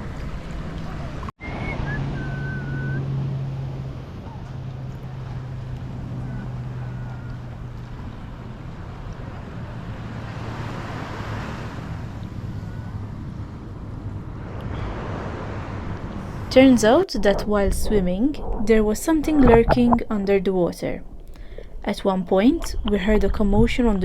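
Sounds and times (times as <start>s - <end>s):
wind buffeting microphone: 16.1s - 24.0s
low steady hum: 16.2s - 24.0s.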